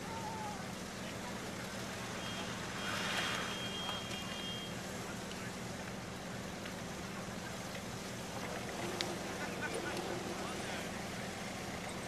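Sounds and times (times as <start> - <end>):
car engines idling: 0.0 - 12.0.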